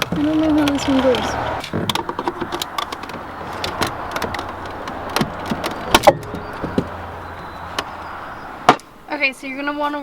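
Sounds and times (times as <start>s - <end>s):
clicks and knocks of car door parts: 0.0s - 8.0s.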